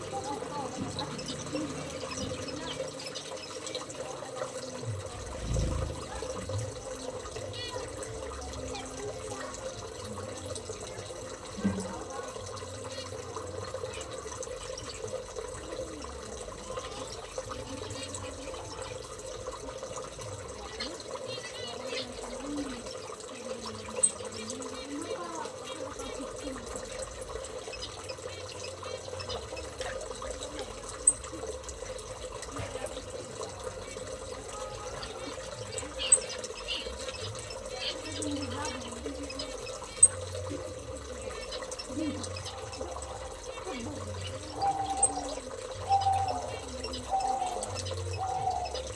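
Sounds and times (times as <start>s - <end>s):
running splashing water: 0.0s - 48.9s
faint bird twittering: 4.7s - 9.8s.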